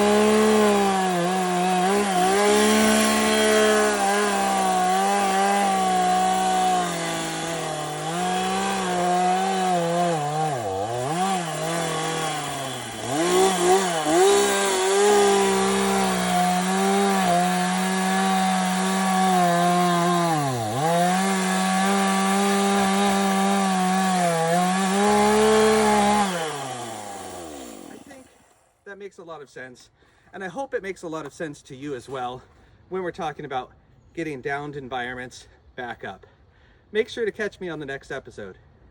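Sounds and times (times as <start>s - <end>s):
chainsaw cutting wood: 0.0s - 28.8s.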